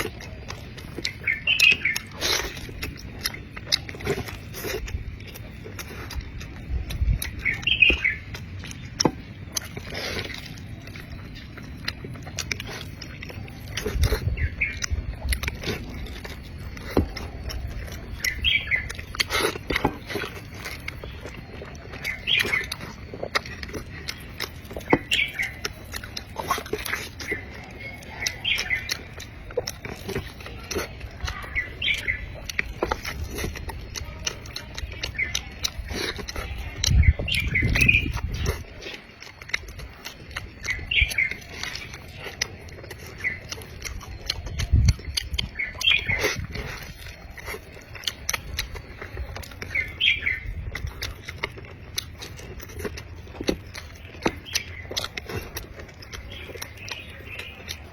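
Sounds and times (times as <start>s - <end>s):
chewing and wet mouth smacking: 0.0s - 57.9s.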